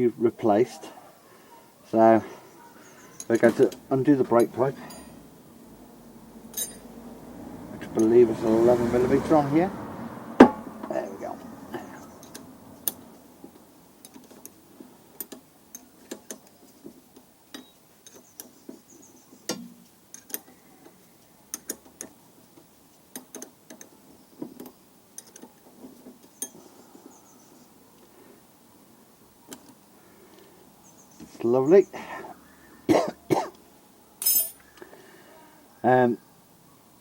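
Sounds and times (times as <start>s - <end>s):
spanner clinking against metal: 3.1s - 5.2s, 6.5s - 6.9s, 34.2s - 34.6s.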